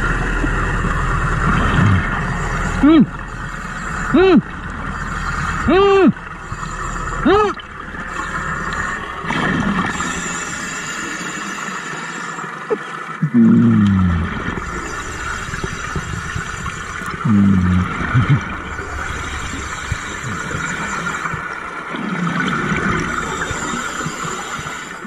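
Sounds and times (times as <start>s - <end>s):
bubbling exhalations: 1.5s - 3.1s, 13.2s - 23.8s
air hissing through regulator: 9.8s - 12.5s, 14.4s - 21.6s, 23.0s - 25.0s.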